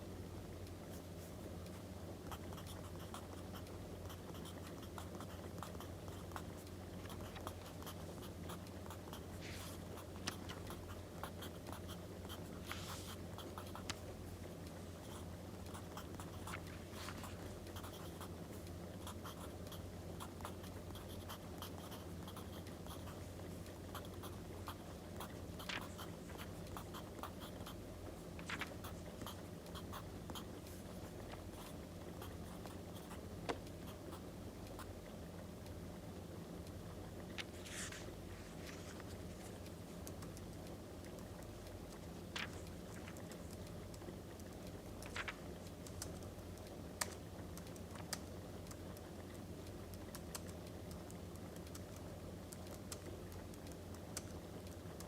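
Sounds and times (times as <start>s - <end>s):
paper rustling: 25.6s - 26.0s, 28.4s - 28.8s, 37.4s - 39.5s, 42.3s - 43.2s, 45.0s - 45.4s.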